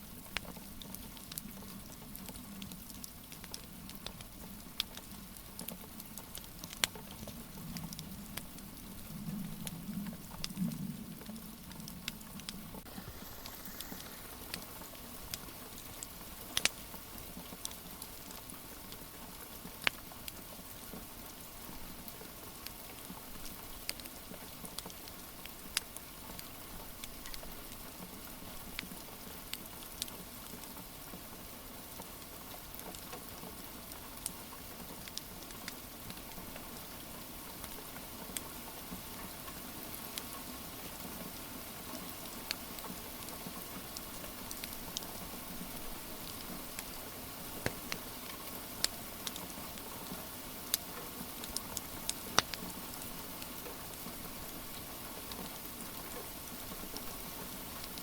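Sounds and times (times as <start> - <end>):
wood fire crackling and popping: 0.1 - 19.1, 22.6 - 27.9, 42.2 - 49.9, 50.6 - 55.4, 56.0 - 58.0
rain hissing: 3.7 - 17.4, 35.3 - 58.0.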